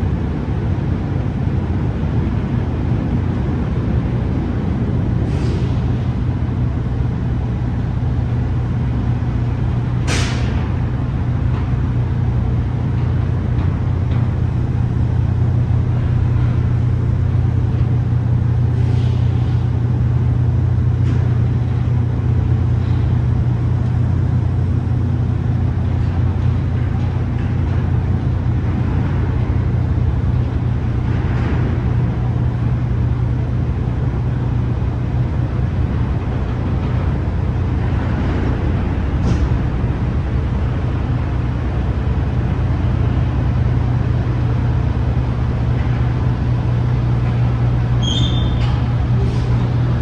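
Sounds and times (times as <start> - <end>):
air brake hisses: 5.2 - 5.9, 18.7 - 19.7, 49.2 - 49.7
diesel truck engine droning: 6.8 - 26.7.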